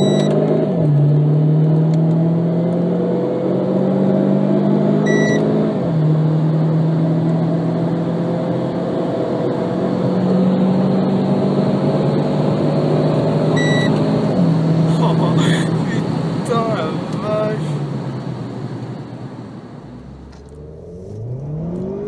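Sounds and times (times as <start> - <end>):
short beep: 0.0 - 0.4, 5.1 - 5.5, 13.5 - 14.0
car engine accelerating: 0.0 - 22.0.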